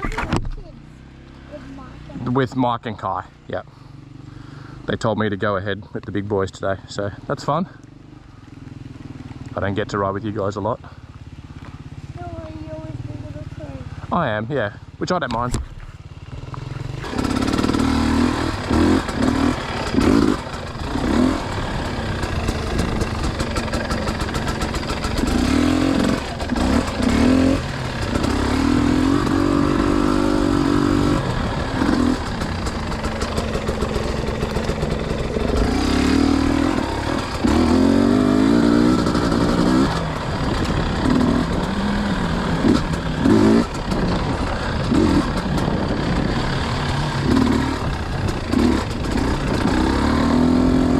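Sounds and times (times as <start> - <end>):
dirt bike engine revving: 13.0 - 50.9.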